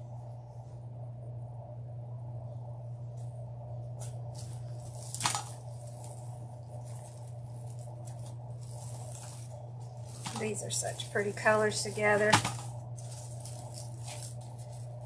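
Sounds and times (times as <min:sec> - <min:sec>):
steady low hum: 0:00.0 - 0:15.0
rustling and crinkling materials: 0:03.2 - 0:15.0
sharp crackle: 0:04.4 - 0:15.0.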